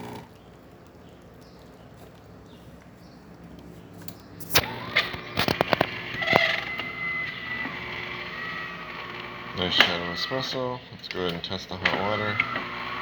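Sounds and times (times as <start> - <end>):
espresso machine humming: 0.0 - 0.3, 4.5 - 10.8, 11.8 - 13.0
high motor whine: 4.4 - 10.8, 11.8 - 13.0.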